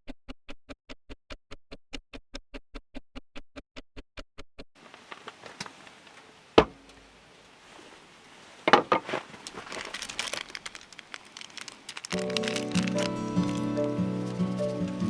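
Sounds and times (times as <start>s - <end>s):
clicks and knocks: 4.8s - 7.1s, 8.6s - 12.6s
small crackling clicks: 4.8s - 15.0s.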